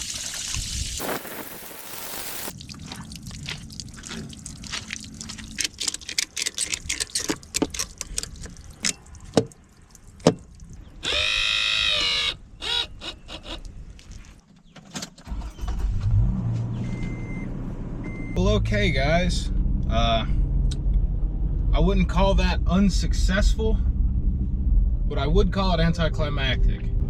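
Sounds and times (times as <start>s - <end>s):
brief whine: 1.0s - 2.5s
water trickling and dripping: 2.5s - 10.9s.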